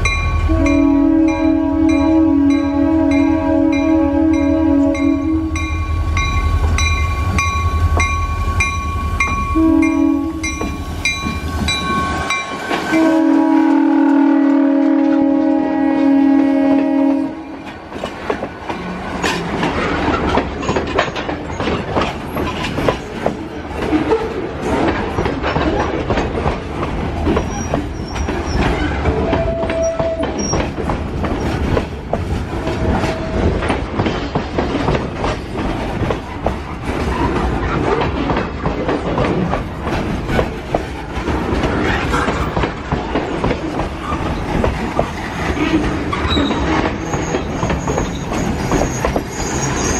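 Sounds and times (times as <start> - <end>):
train wheels clicking over rail joints: 0.0 - 13.0, 17.5 - 49.9
train rumble: 0.0 - 49.9
train horn chord: 0.4 - 5.8, 9.5 - 10.6, 12.3 - 17.7
short squeals: 46.2 - 49.9.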